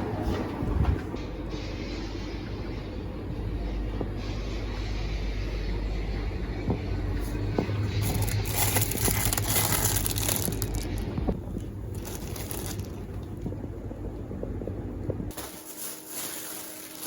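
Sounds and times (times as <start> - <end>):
crinkling and crackling: 7.7 - 13.7, 15.3 - 17.0.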